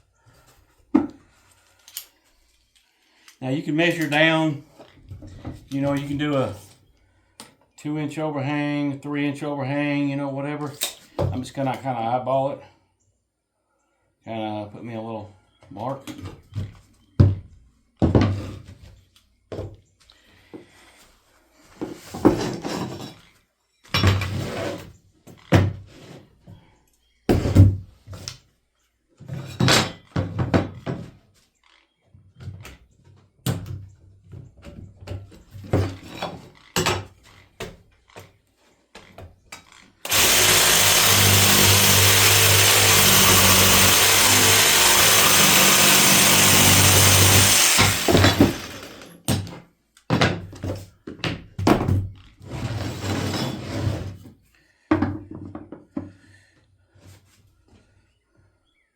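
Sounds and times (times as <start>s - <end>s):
electric saw cutting wood: 40.1s - 49.2s.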